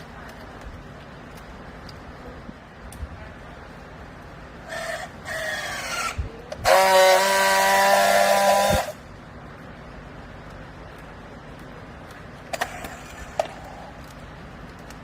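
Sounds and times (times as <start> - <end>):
hydraulics whining under load: 3.4 - 15.0.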